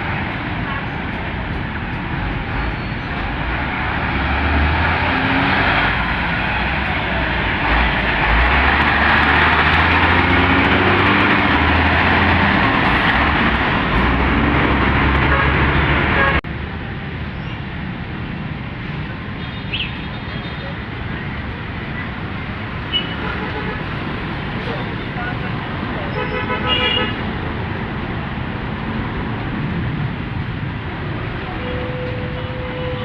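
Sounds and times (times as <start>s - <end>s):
truck engines running low: 0.0s - 26.2s
heavy road traffic passing: 0.0s - 33.0s.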